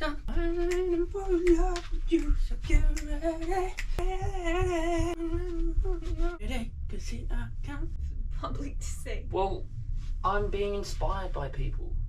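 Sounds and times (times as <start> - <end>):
person humming: 4.0 - 6.4.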